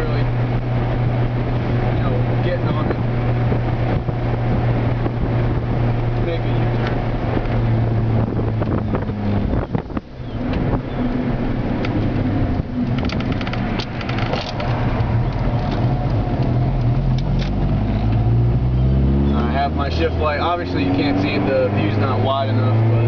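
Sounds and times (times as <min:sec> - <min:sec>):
car engine cruising: 0:00.0 - 0:23.0
light clicks and rattles: 0:12.8 - 0:18.2.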